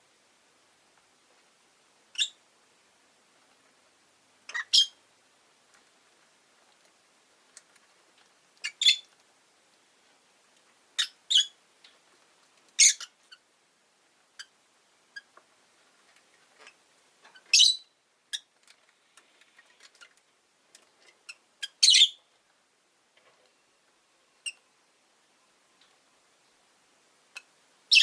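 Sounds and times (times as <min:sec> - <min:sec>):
lovebirds chirping: 0:02.1 - 0:02.4, 0:04.5 - 0:05.0, 0:08.6 - 0:09.1, 0:11.0 - 0:11.6, 0:12.8 - 0:13.4, 0:17.4 - 0:18.5, 0:21.2 - 0:22.3, 0:27.4 - 0:28.0
shrill bird calls: 0:04.5 - 0:05.0, 0:17.5 - 0:17.9, 0:21.7 - 0:22.2.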